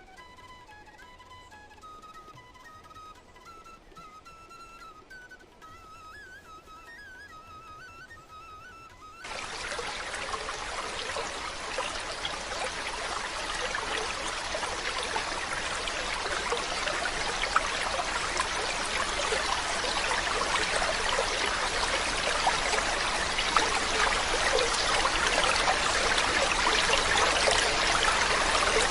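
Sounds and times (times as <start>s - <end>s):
running water splashing: 9.2s - 28.9s.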